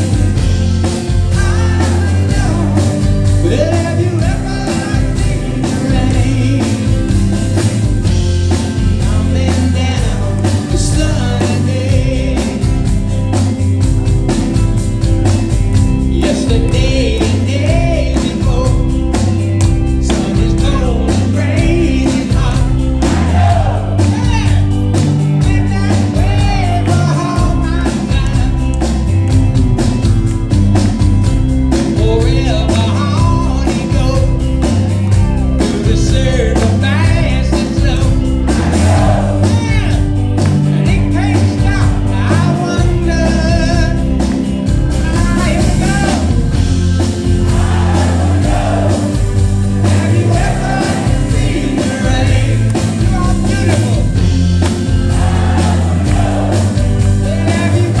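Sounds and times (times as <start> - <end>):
backing singing: 0.0 - 13.3, 16.0 - 28.8, 35.1 - 58.0
live rock band playing: 0.0 - 58.0
lead vocals singing: 1.0 - 7.7, 8.5 - 13.1, 16.1 - 19.1, 19.9 - 28.6, 35.2 - 44.0, 45.0 - 58.0.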